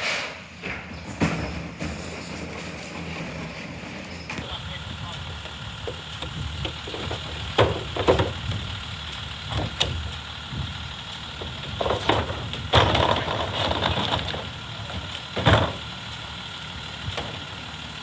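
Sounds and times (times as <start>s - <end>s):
metal clanks and knocks: 0.0s - 4.4s, 5.8s - 8.6s, 9.5s - 10.7s, 11.4s - 15.9s
garbage truck engine idling: 0.3s - 18.0s
rattling clatter: 0.5s - 4.4s, 5.8s - 16.0s.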